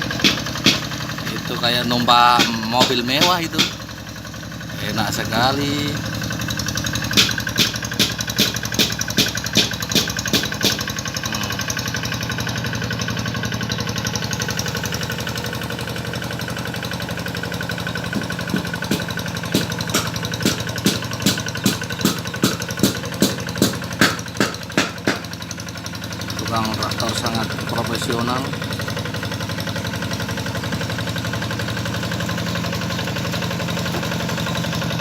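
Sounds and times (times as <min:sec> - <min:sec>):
tractor engine running: 0:00.0 - 0:35.0
regular metallic clanking: 0:33.1 - 0:34.9.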